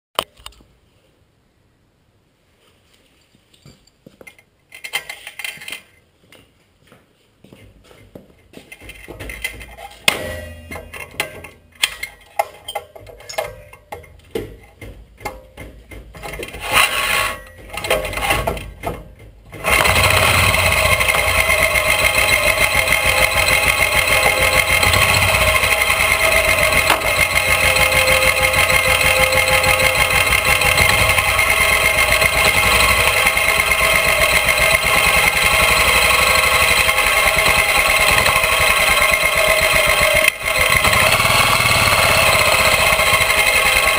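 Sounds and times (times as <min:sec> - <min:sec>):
knocks and clicks: 0:08.7 - 0:16.8, 0:20.8 - 0:41.0
motorcycle engine running: 0:19.6 - 0:43.9.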